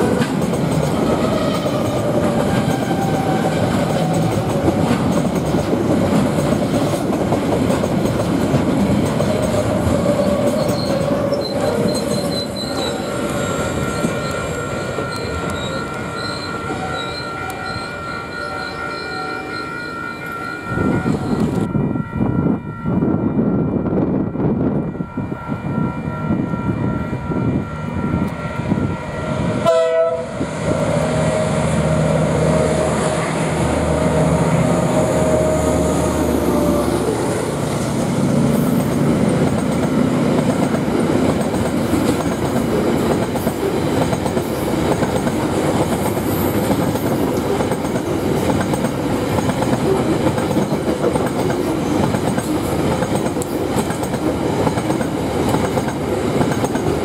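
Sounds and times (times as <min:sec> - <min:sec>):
locomotive engine: 0:00.0 - 0:21.7, 0:30.6 - 0:57.0
train horn: 0:10.2 - 0:37.6.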